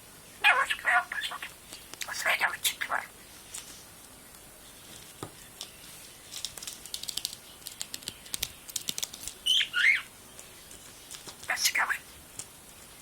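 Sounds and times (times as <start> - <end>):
budgerigar chirping chatter: 0.4 - 3.1, 9.5 - 10.1
budgerigar clicks and taps: 6.5 - 9.4.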